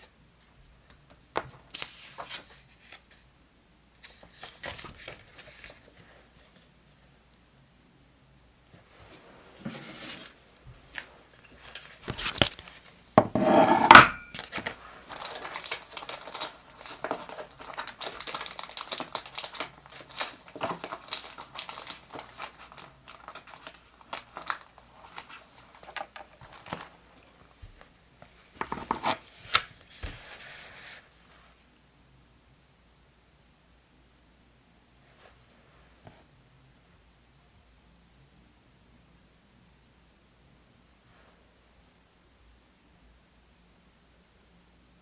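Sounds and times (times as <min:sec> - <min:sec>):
paper crinkling and rustling: 0:01.6 - 0:03.2, 0:04.0 - 0:06.8, 0:08.8 - 0:13.0, 0:14.3 - 0:31.5.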